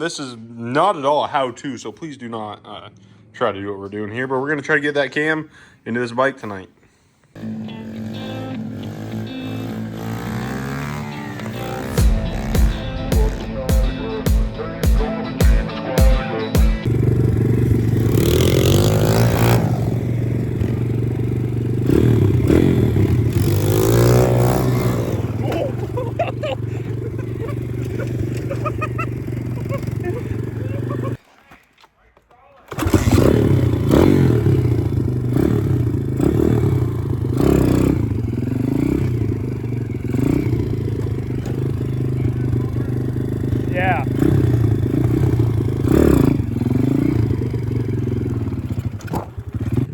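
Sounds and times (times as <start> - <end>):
motorbike engine revving: 7.4 - 14.0, 16.8 - 31.2, 32.7 - 49.9.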